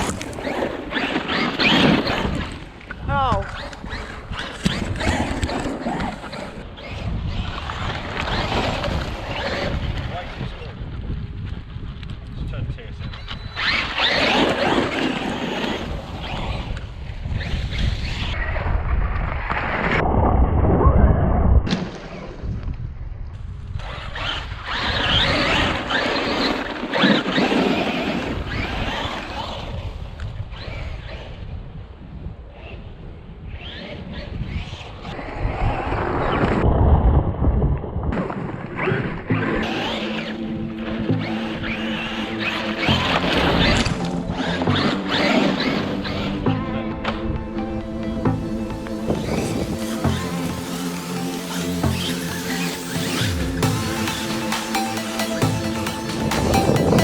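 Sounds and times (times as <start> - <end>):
wind buffeting microphone: 0.0 - 26.0, 28.2 - 39.8
rc truck motor whining: 13.2 - 18.4
electric motor whining: 39.6 - 57.0.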